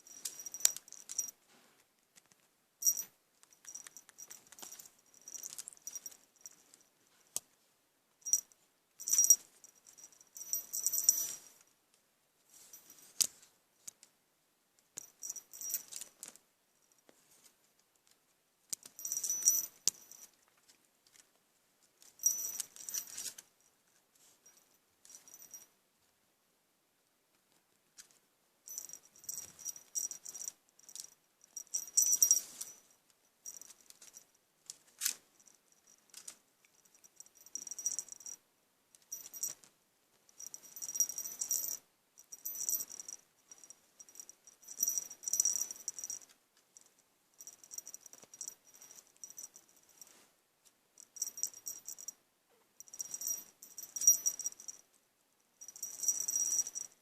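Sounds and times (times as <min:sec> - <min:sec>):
light rattling and jingling: 0:00.0 - 0:01.5, 0:02.2 - 0:07.4, 0:08.2 - 0:11.7, 0:15.0 - 0:17.5, 0:18.7 - 0:21.4, 0:22.0 - 0:25.7, 0:28.0 - 0:38.4, 0:39.0 - 0:39.7, 0:40.3 - 0:50.2, 0:51.0 - 0:54.9, 0:55.6 - 0:57.0.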